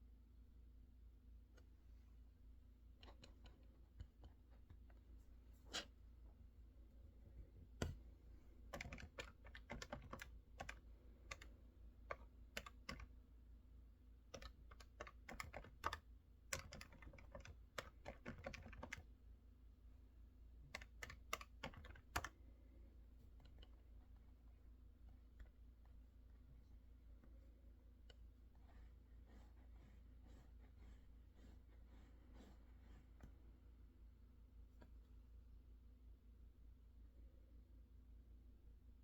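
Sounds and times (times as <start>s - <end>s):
mechanical keyboard typing: 8.7s - 11.5s, 12.1s - 13.1s, 14.3s - 19.1s, 20.7s - 22.3s.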